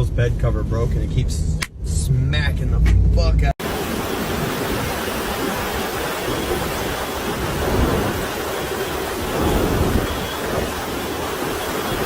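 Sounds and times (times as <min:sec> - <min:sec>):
driving rain: 0:03.6 - 0:12.0
hurricane wind: 0:03.6 - 0:12.0.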